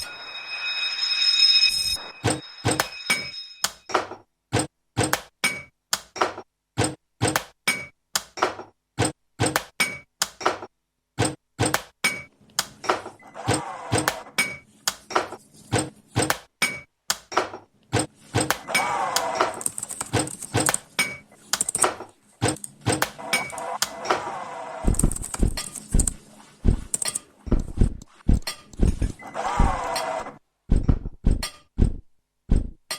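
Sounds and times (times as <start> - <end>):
wavering pitched tones: 0.0 - 3.7
rhythmic clicks and knocks: 24.9 - 29.9
deep thumps: 27.5 - 29.9, 30.7 - 32.9.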